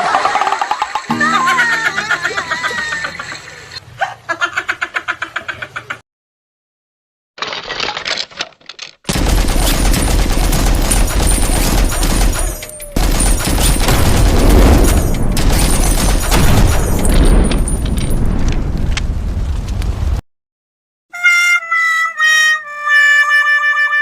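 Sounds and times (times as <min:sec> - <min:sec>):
rapid bangs and crackles: 0:09.1 - 0:20.0.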